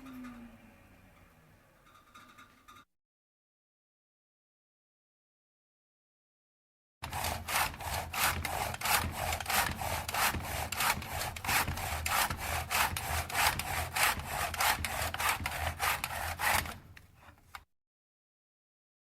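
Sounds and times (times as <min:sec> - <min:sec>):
handsaw cutting wood: 0:07.0 - 0:17.4.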